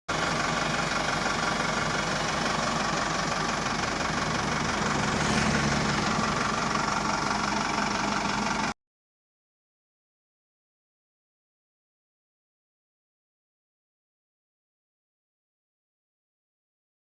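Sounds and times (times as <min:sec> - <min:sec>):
truck engine idling: 0:00.1 - 0:08.8.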